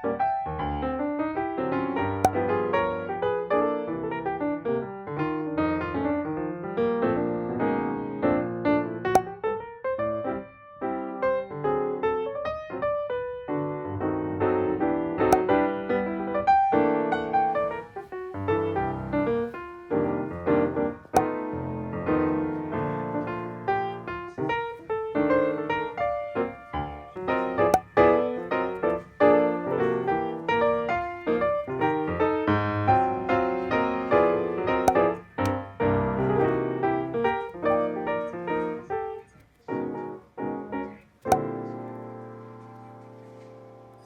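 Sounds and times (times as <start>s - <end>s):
piano music: 18.4s - 39.2s.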